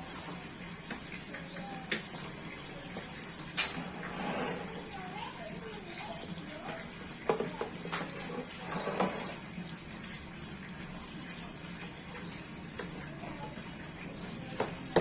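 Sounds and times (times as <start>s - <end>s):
light knocks and clinks: 7.3s - 9.3s.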